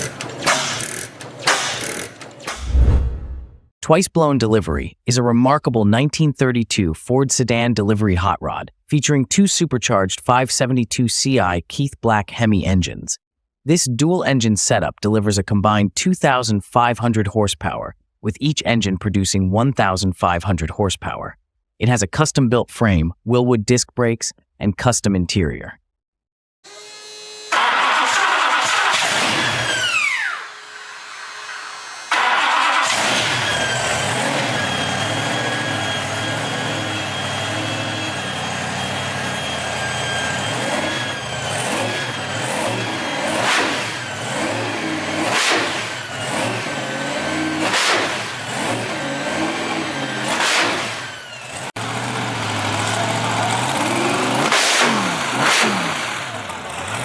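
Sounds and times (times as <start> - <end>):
high supercharger whine: 27.5 - 57.0
hot rod engines revving: 32.1 - 57.0.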